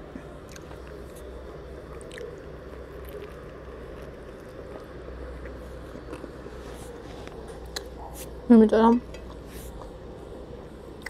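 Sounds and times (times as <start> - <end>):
low background hum: 0.0 - 11.0
person chewing bread: 0.1 - 8.4.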